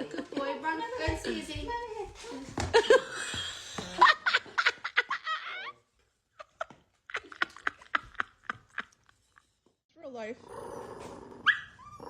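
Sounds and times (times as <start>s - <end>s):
person laughing: 6.4s - 9.5s.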